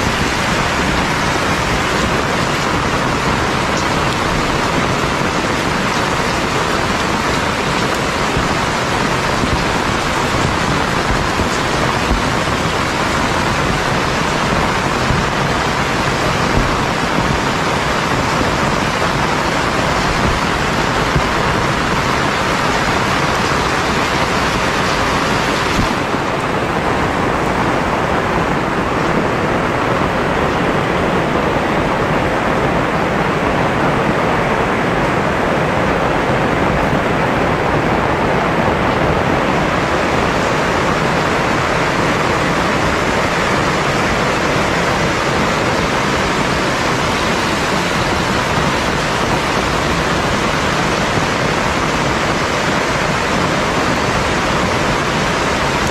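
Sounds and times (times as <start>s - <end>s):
heavy rain falling: 0.0s - 55.9s.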